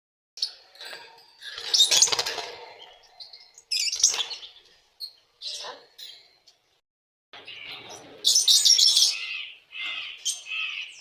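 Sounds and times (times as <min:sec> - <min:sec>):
lovebirds chirping and chattering: 0:00.4 - 0:06.8, 0:07.4 - 0:11.0.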